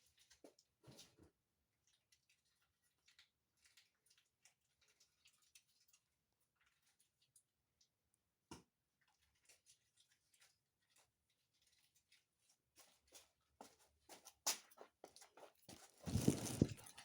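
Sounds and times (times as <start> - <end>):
small items clicking and rustling: 16.0 - 17.0.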